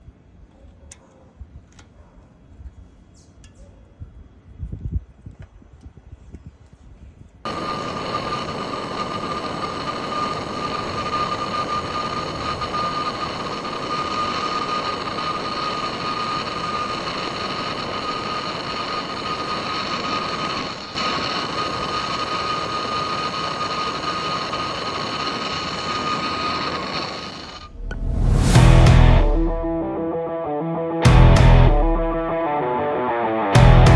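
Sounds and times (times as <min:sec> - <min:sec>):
torch flame hissing: 0:07.4 - 0:29.5
thin whistle: 0:07.5 - 0:27.8.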